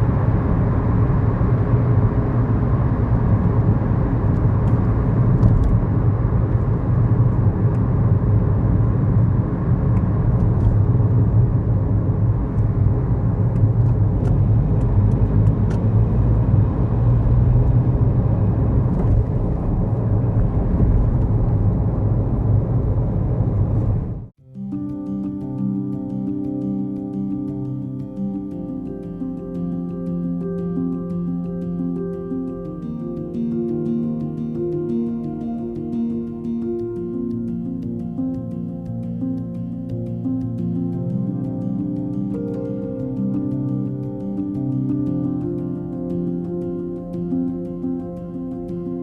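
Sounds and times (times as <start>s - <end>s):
road noise: 0.0s - 24.3s.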